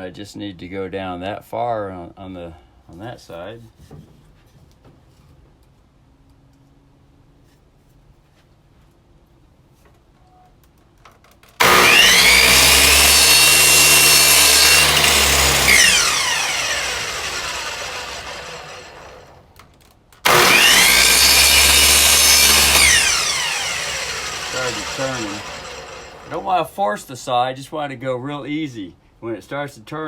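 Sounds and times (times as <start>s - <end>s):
saw cutting wood: 11.6s - 19.4s, 20.2s - 26.6s
electric miter saw whining: 11.6s - 19.5s, 20.2s - 26.6s.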